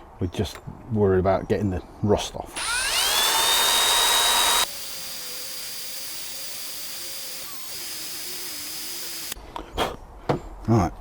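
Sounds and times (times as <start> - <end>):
power drill whining: 2.6 - 9.4.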